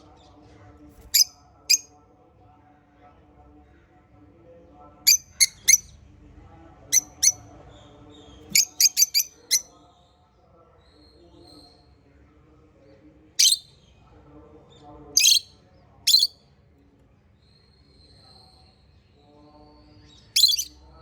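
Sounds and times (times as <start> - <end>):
faint parrot chattering: 5.1 - 5.9, 6.9 - 7.4, 8.5 - 9.7, 13.4 - 13.6, 15.2 - 15.5, 16.1 - 16.3, 20.4 - 20.8
parrots shrill chirps: 5.1 - 5.9, 7.0 - 7.4, 8.5 - 9.7, 13.4 - 13.6, 15.2 - 15.5, 16.1 - 16.4, 20.4 - 20.7.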